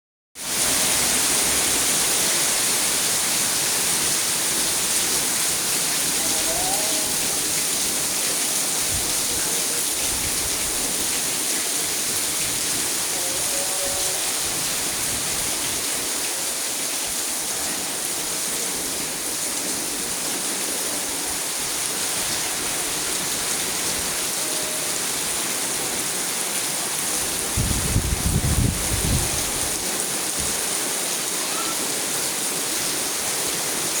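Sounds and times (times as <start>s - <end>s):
heavy rain: 0.4s - 34.0s.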